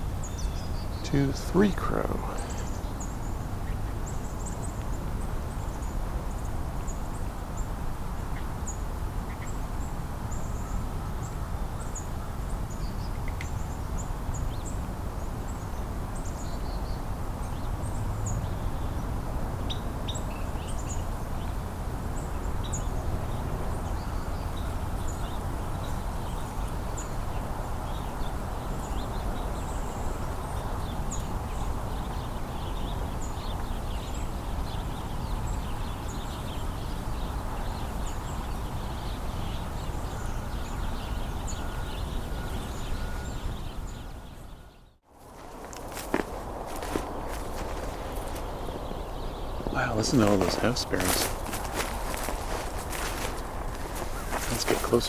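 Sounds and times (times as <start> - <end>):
small birds chirping: 0.0 - 55.0
crows cawing: 41.5 - 43.4.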